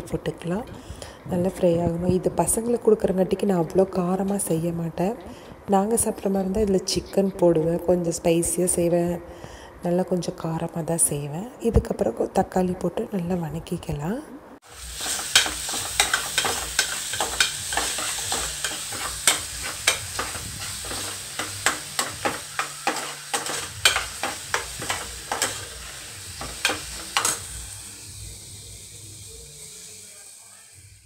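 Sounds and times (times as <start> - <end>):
onions sizzling in oil: 14.6 - 31.0
ladle clinking and scraping pot: 15.0 - 27.4.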